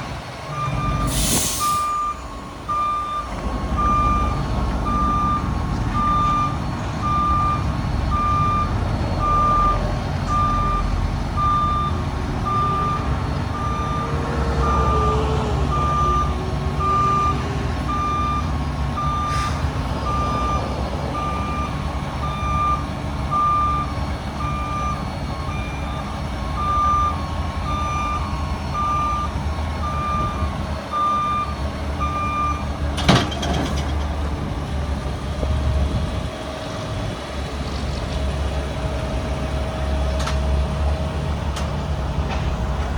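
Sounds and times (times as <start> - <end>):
diesel engine running: 0.0 - 42.9
truck backup alarm beeping: 0.1 - 37.4.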